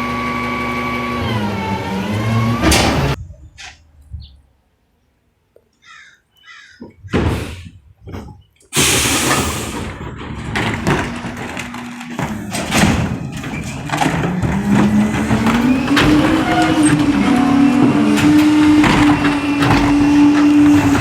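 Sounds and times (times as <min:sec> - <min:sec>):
garbage truck engine revving: 0:00.0 - 0:03.2, 0:08.8 - 0:21.0
knocks and thumps: 0:06.8 - 0:21.0
trash crunching and clattering: 0:07.3 - 0:21.0
loud crash with hiss: 0:08.8 - 0:10.0.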